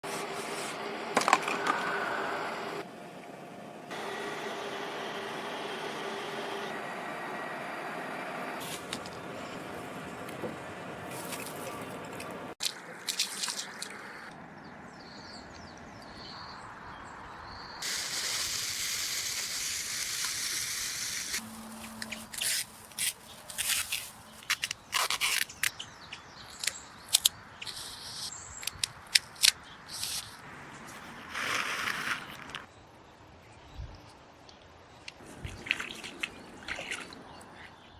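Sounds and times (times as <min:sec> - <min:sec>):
steady hiss: 0:17.8 - 0:21.5.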